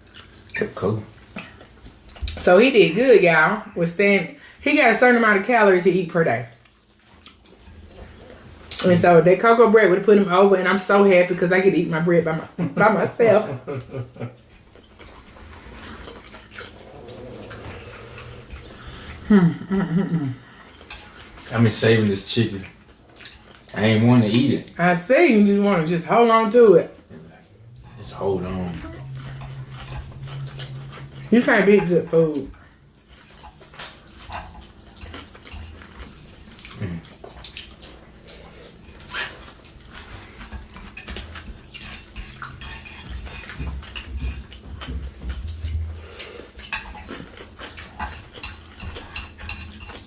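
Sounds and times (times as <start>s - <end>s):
wet chewing: 0.0s - 2.5s, 6.4s - 9.1s, 13.8s - 50.0s
person speaking: 25.6s - 30.5s.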